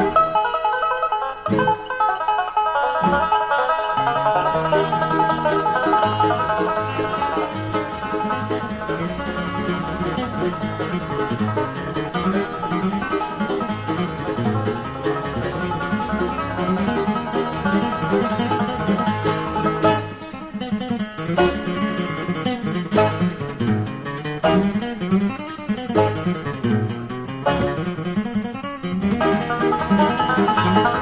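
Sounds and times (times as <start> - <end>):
banjo lead: 0.0 - 31.0
guitar: 0.0 - 31.0
mandolin: 0.0 - 31.0
walking bass line: 23.0 - 24.8, 26.0 - 28.2.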